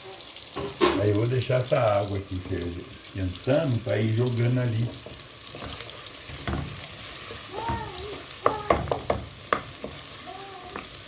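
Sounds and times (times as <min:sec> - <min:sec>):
meat sizzling in a pan: 0:00.0 - 0:11.0
utensil knocking against pan: 0:07.6 - 0:10.0.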